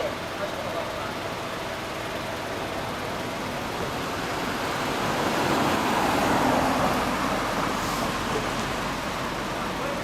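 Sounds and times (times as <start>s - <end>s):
vehicle passing: 3.6s - 9.8s.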